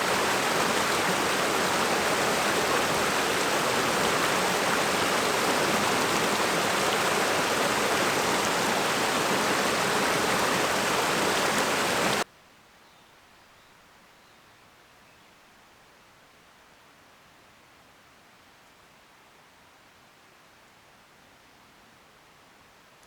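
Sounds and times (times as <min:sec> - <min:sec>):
rushing water hiss: 0:00.0 - 0:12.2
faint hiss: 0:00.0 - 0:14.9.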